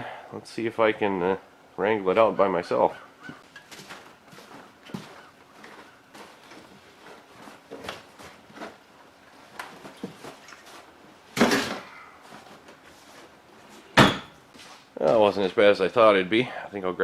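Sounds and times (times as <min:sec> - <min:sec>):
light knocks and bumps: 0:03.2 - 0:14.7
heavy object thud: 0:14.0 - 0:14.4.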